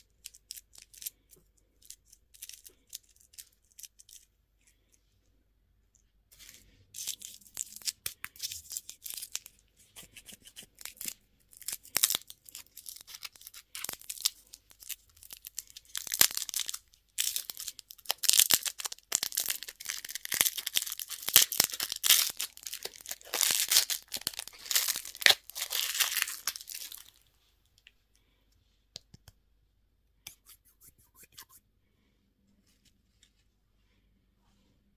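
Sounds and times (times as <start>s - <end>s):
packaging tearing and crinkling: 10.5s - 27.2s.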